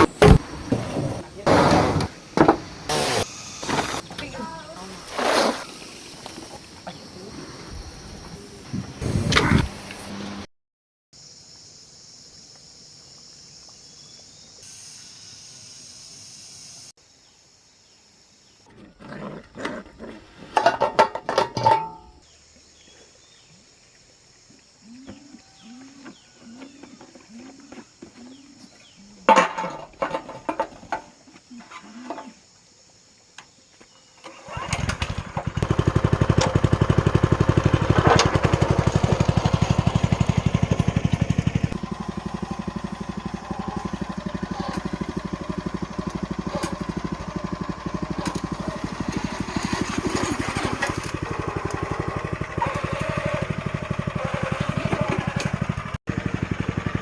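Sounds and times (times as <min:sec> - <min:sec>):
small engine running: 0:00.0 - 0:06.4, 0:34.3 - 0:57.0.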